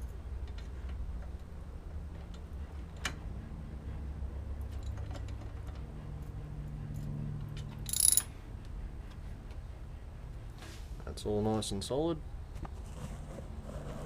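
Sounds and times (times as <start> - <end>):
metal clatter: 7.9 - 8.3
socket ratchet clicking: 7.9 - 8.3.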